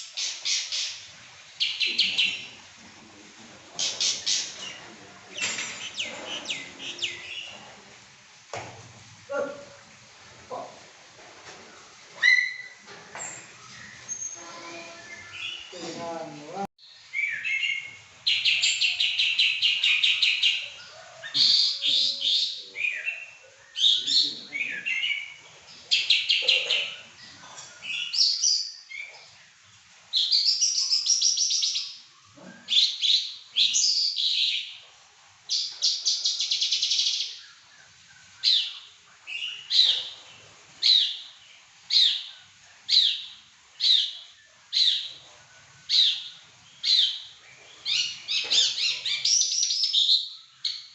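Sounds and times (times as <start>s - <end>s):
tailorbird singing: 1.6s - 2.7s, 3.8s - 7.7s, 13.6s - 29.4s.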